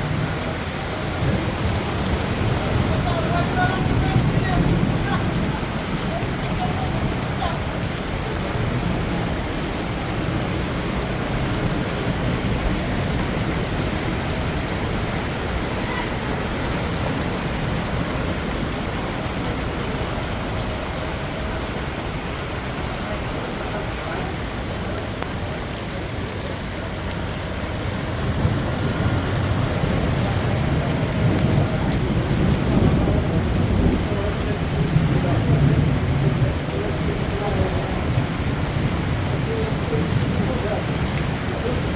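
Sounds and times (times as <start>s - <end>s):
low thunder rumble: 0.0s - 23.5s, 24.5s - 41.9s
heavy rain pouring: 0.0s - 41.9s.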